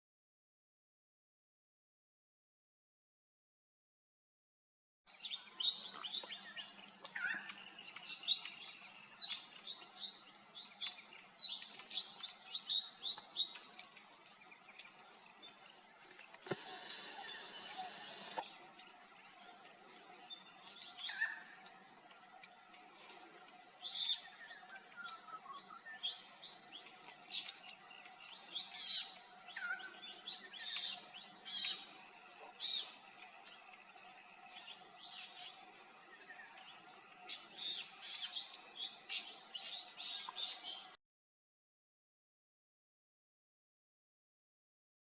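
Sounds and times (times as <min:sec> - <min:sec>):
birds chirping and calling: 0:05.3 - 0:40.9
faint steady hum: 0:13.6 - 0:25.6.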